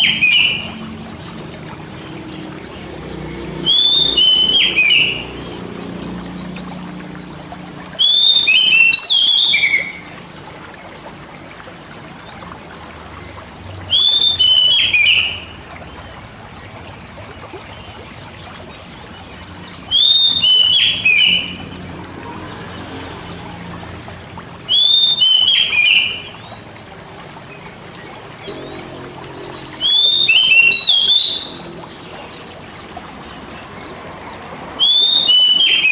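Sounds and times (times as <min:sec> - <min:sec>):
bird whistling song: 0:00.0 - 0:01.9, 0:03.6 - 0:05.6, 0:06.3 - 0:10.2, 0:13.9 - 0:15.6, 0:19.7 - 0:21.6, 0:24.7 - 0:26.5, 0:28.5 - 0:33.3, 0:34.8 - 0:35.9.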